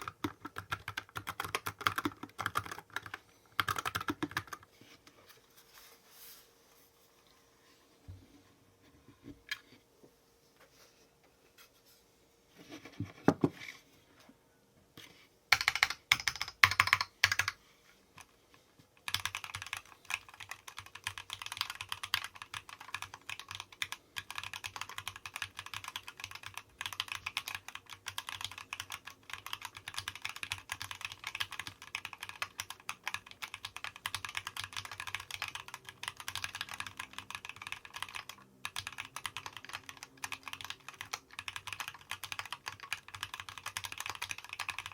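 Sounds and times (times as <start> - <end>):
mechanical keyboard typing: 0.0 - 4.6, 15.5 - 17.6, 19.0 - 44.9.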